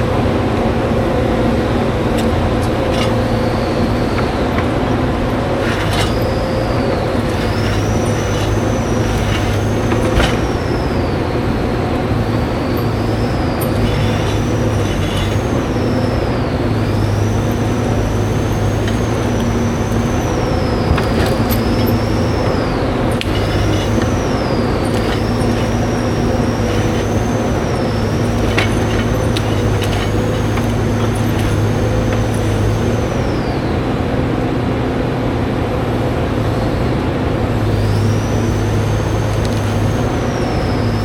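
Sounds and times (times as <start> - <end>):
diesel engine running: 0.0 - 41.0
high machine whine: 0.0 - 41.0.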